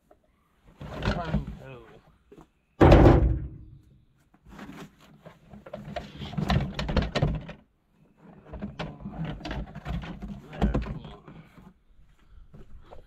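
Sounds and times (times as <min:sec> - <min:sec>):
tools and plastic fittings clattering: 0:04.5 - 0:11.7.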